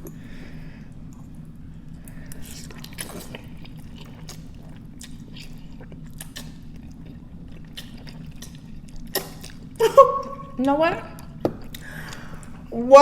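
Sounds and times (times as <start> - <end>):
wet chewing of noodles: 0.0 - 12.7
steady low hum: 0.0 - 13.0.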